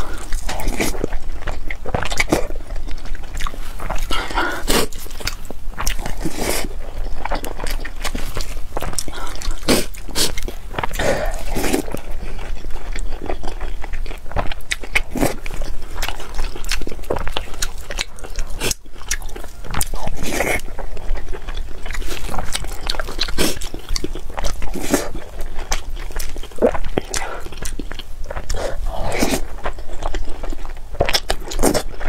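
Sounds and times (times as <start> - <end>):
person chewing food: 0.0 - 32.0.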